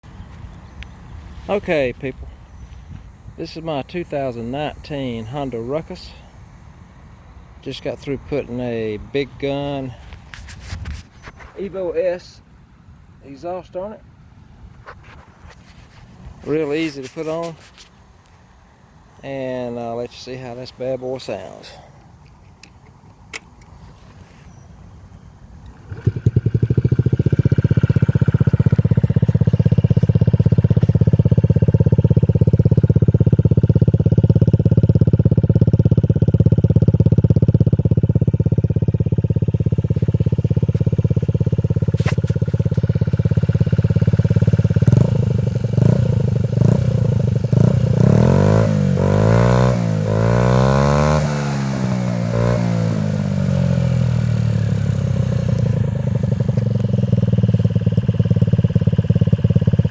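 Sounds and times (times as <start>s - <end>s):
scooter engine idling and revving: 25.0s - 59.9s.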